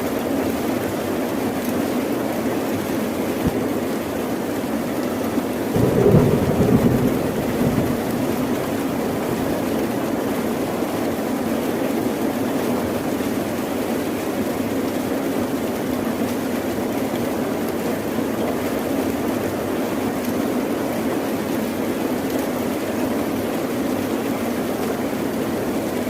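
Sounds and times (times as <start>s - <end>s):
steady rain falling: 0.0s - 26.0s
thunder rumbling: 5.8s - 10.7s.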